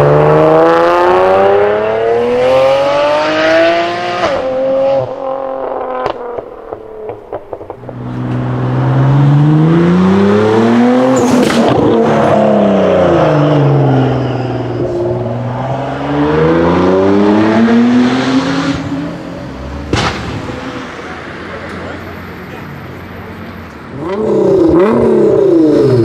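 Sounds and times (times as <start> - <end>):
car engine revving: 0.0 - 22.0, 23.9 - 26.0
sharp exhaust bang: 19.9 - 20.7.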